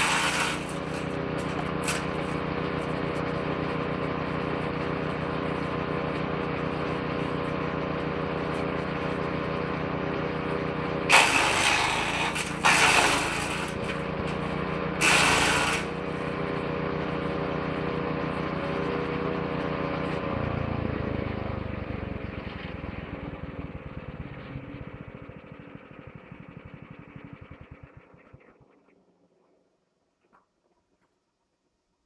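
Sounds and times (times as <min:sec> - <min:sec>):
woodchipper engine running: 0:00.0 - 0:28.4
material being shredded: 0:11.1 - 0:14.0, 0:15.0 - 0:15.9.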